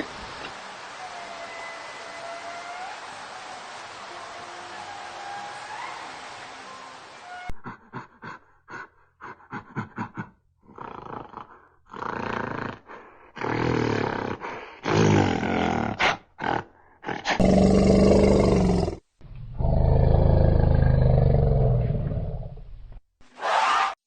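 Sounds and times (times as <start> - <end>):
large animal roaring: 13.4 - 22.6.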